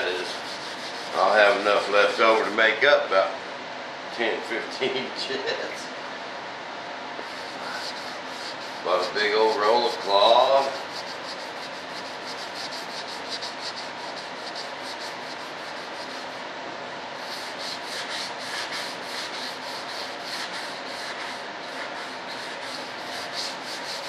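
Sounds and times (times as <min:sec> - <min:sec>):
sandpaper rubbing: 0:00.0 - 0:02.0, 0:07.2 - 0:16.4, 0:17.2 - 0:24.0.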